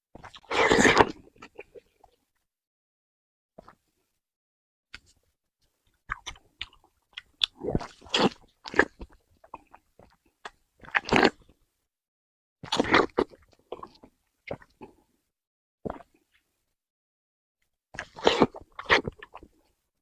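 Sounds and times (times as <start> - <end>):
person biting food: 0.2 - 1.2.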